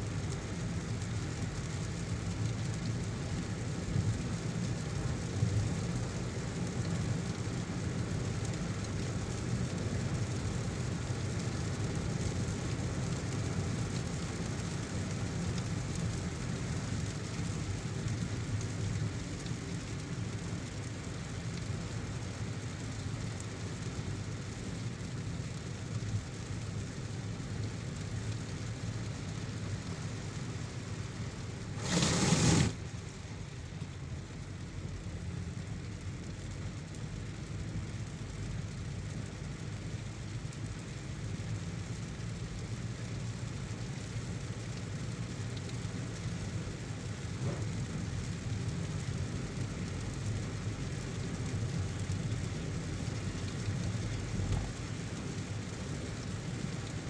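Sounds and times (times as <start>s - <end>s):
heavy rain: 0.0s - 57.0s
road and engine rumble: 0.0s - 57.0s
brief loud rush of noise: 31.7s - 32.8s.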